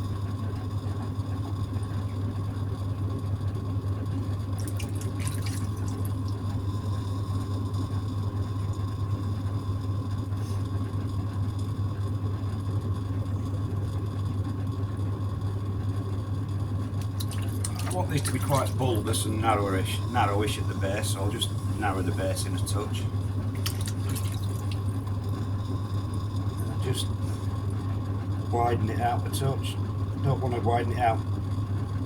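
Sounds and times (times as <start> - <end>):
potter's wheel humming: 0.0 - 32.0
hands swishing on wet clay: 23.6 - 24.8.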